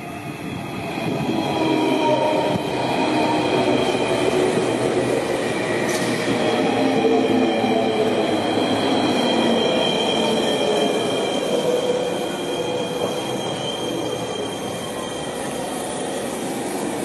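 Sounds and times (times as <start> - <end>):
train rumbling: 0.0 - 17.0
high squeal: 7.6 - 16.6.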